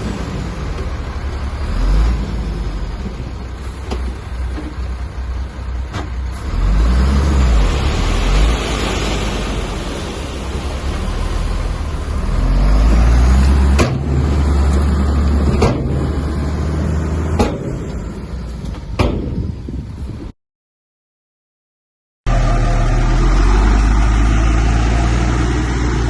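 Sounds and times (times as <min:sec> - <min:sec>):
bulldozer engine rumbling: 0:00.0 - 0:20.3, 0:22.3 - 0:26.0
sharp knocks: 0:17.4 - 0:17.9, 0:19.0 - 0:19.4.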